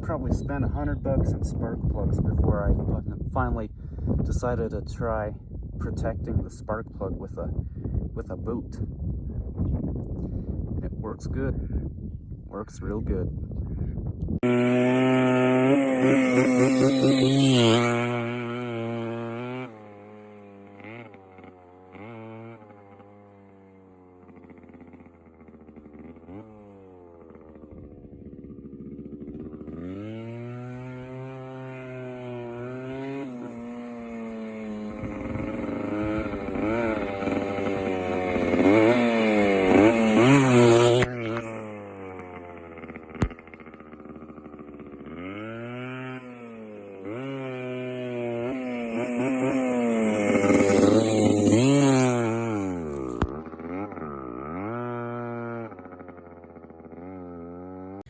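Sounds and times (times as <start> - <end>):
dirt bike engine revving: 14.4 - 58.0.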